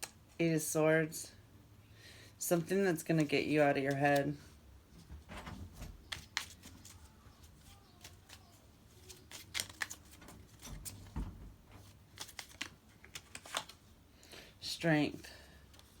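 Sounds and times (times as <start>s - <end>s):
cards clicking and tapping: 6.0s - 11.1s, 11.8s - 13.8s.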